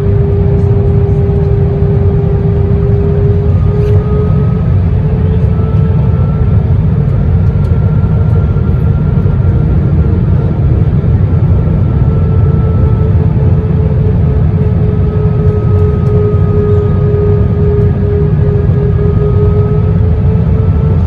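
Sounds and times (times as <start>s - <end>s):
aircraft cabin airflow rumble: 0.0s - 21.0s
jet engines humming: 0.0s - 21.0s.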